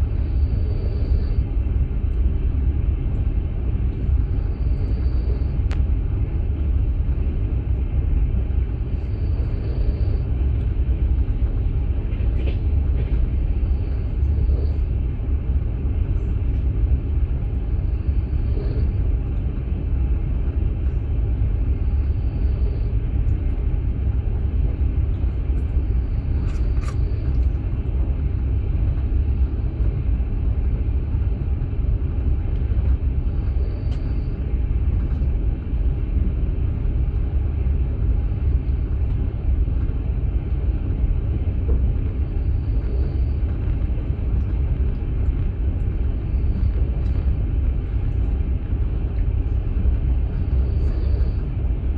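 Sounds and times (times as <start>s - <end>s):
train wheels rumbling on rails: 0.0s - 51.9s.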